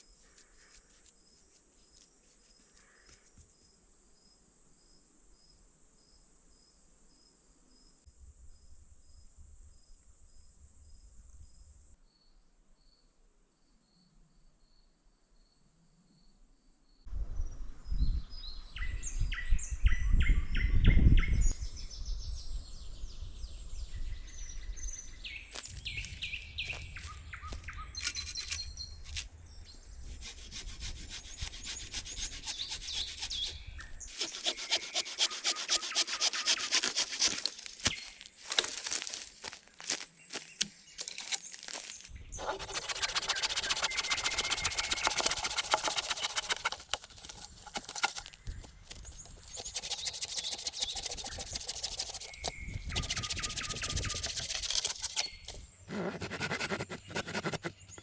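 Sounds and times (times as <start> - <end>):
birds chirping: 25.2 - 58.0
hand tool rasping against wood: 25.5 - 29.3, 30.0 - 58.0.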